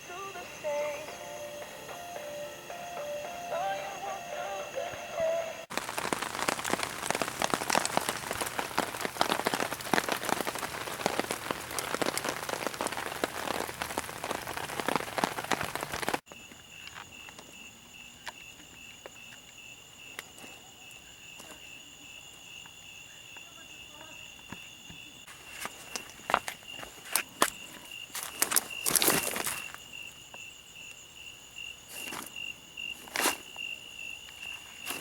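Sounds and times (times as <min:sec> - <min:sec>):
high-pitched insect trill: 0:00.0 - 0:08.0, 0:16.3 - 0:35.0
heavy rain falling: 0:05.6 - 0:16.2.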